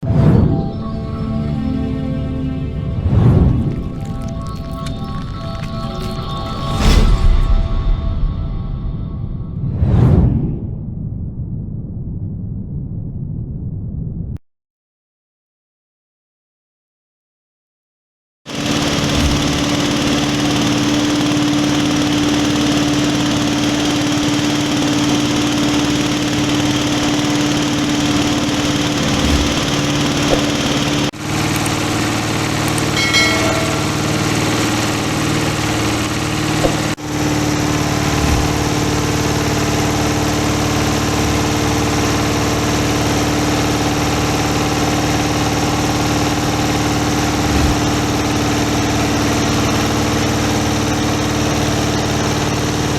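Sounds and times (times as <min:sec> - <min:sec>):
grinding mill droning: 0:00.6 - 0:07.9, 0:18.5 - 0:52.9.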